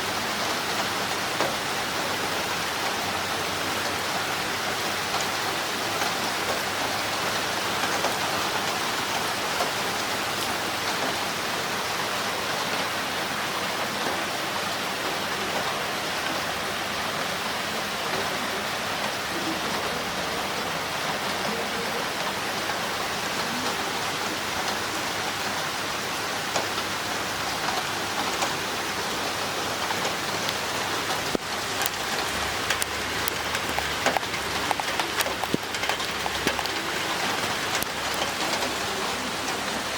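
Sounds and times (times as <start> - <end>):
heavy rain: 0.0 - 39.9
water running through drain pipe: 27.4 - 39.9.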